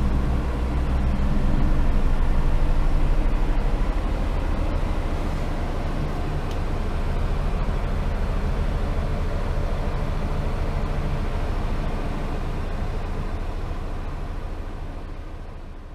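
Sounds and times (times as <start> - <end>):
van engine humming: 0.0 - 15.9.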